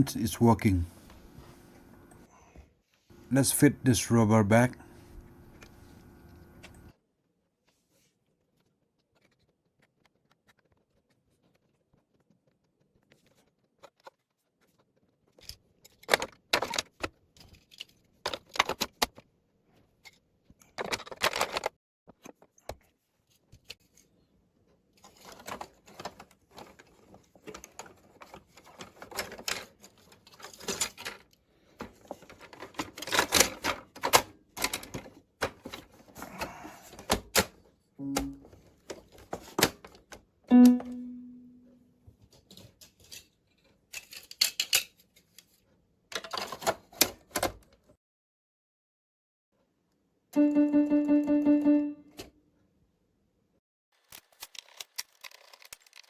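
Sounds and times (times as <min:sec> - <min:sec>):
plastic parts clicking and scraping: 0:15.3 - 0:19.2, 0:19.9 - 0:22.5, 0:25.0 - 0:37.6, 0:42.4 - 0:47.7, 0:54.0 - 0:56.0.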